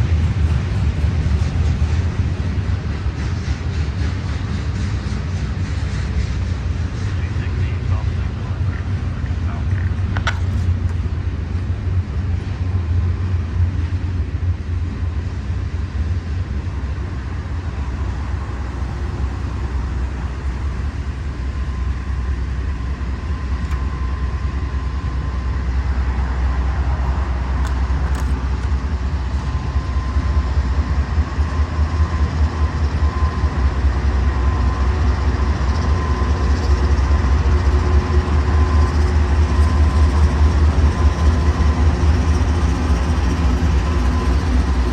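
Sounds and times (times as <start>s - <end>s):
freight train rumbling past: 0.0s - 44.9s
thin steady squeal: 31.4s - 44.9s.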